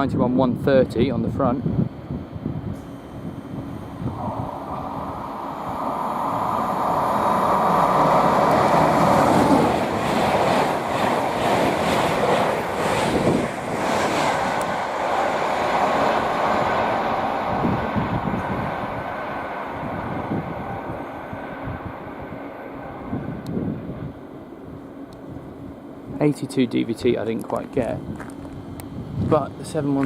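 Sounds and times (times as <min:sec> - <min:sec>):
electric train passing at speed: 0:00.0 - 0:30.0
rhythmic train wheel clatter: 0:04.8 - 0:20.4.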